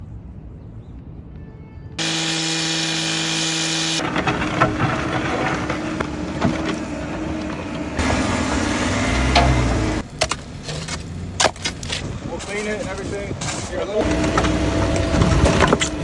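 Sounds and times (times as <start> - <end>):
power tool running: 2.0 - 10.0, 14.0 - 16.0.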